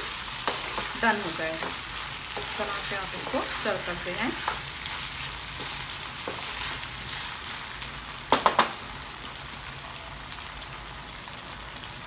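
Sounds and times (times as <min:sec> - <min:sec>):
wooden spatula stirring: 0:00.0 - 0:07.8
chicken and peppers sizzling in a pan: 0:00.0 - 0:12.0.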